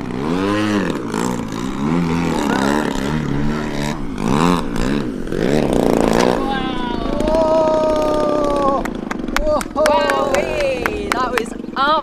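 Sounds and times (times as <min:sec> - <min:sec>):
model helicopter rotor buzz: 0:00.0 - 0:09.3.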